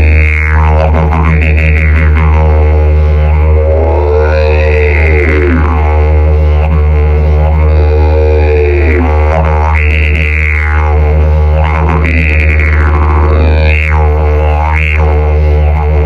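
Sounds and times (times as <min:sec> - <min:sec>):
didgeridoo drone: 0:00.0 - 0:16.0.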